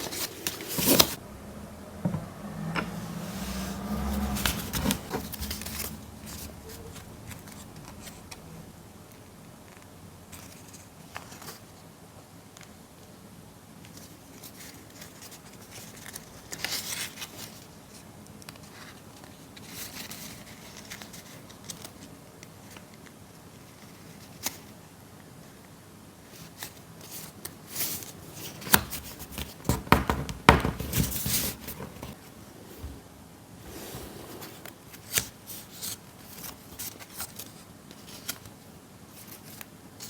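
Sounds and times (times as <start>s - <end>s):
paper rustling and crinkling: 0.0s - 1.2s, 3.4s - 8.4s, 13.9s - 24.8s, 26.2s - 33.0s, 33.7s - 40.0s.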